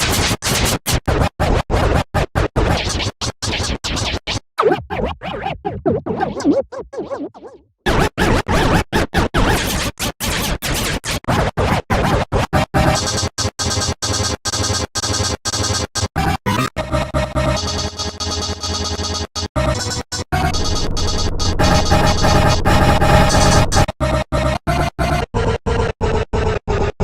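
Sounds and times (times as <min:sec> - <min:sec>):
record scratch: 0:02.6 - 0:12.2, 0:16.5 - 0:16.8, 0:20.4 - 0:24.0
stuttering edited music: 0:12.6 - 0:26.6.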